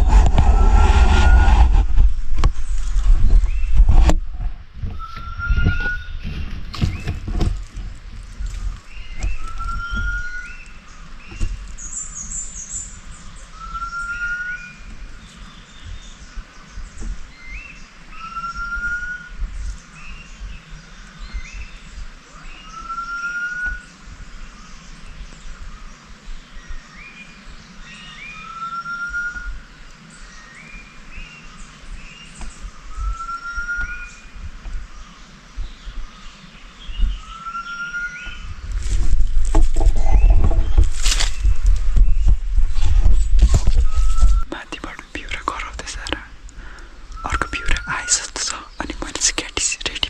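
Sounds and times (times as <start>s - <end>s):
low rumbling thumps: 0.0s - 10.4s, 38.2s - 47.6s
bird rising whistle: 4.9s - 6.2s, 9.3s - 10.6s, 13.5s - 14.8s, 18.2s - 19.3s, 28.4s - 29.6s, 32.9s - 34.3s, 43.7s - 44.5s
bird chirps: 8.8s - 29.6s, 43.1s - 50.0s.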